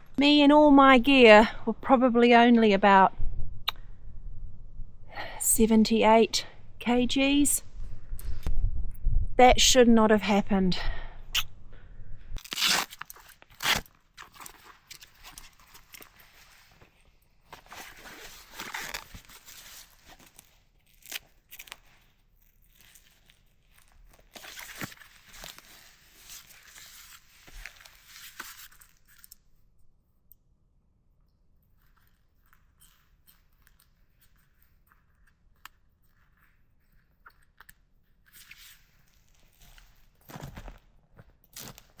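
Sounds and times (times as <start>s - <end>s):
rustling and crunching handling noise: 12.4s - 29.6s, 31.6s - 42.0s.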